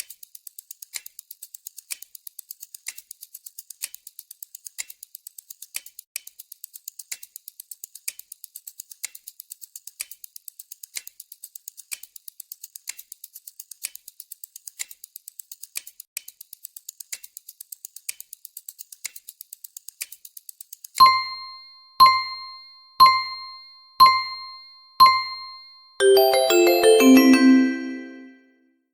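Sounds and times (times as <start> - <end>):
louder timer tick: 21.0 - 26.6
timer ticking: 21.0 - 28.3.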